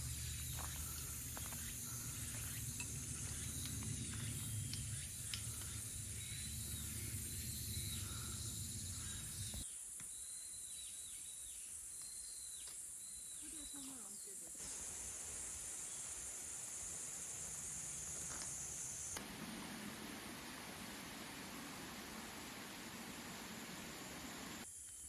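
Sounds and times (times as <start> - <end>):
falling chirps: 0.0 - 9.6
low rumble: 0.0 - 9.6
insects droning: 0.0 - 25.0.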